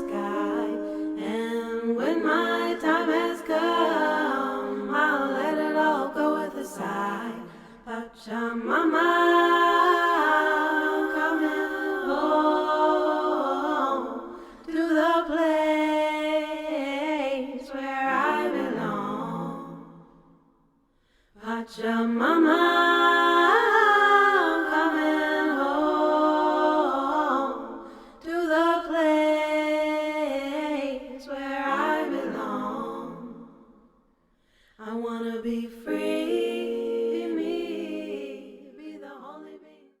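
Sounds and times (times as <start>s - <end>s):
person singing wordlessly: 0.0s - 19.5s.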